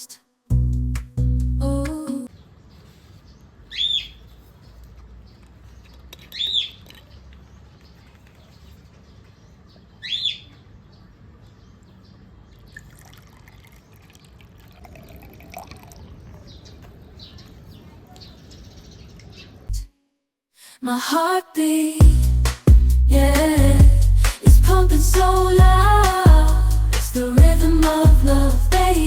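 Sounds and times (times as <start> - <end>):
bird chirping: 2.3 - 12.9.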